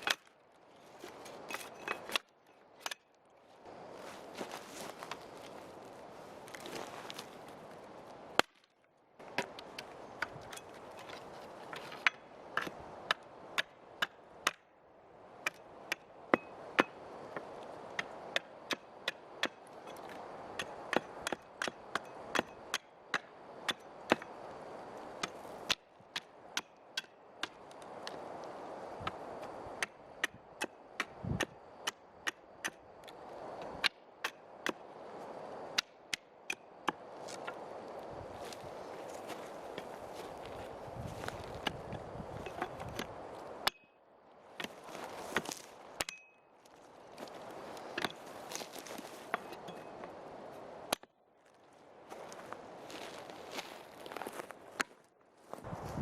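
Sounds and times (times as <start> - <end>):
wood being chopped: 8.4 - 10.3.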